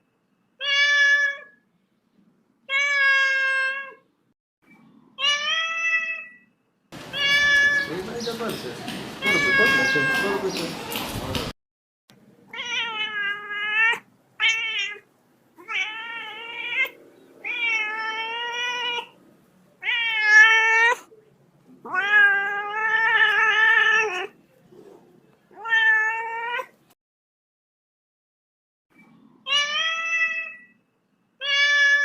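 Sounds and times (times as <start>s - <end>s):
kitten meowing: 7.1s - 7.9s, 9.2s - 11.0s, 12.5s - 19.2s.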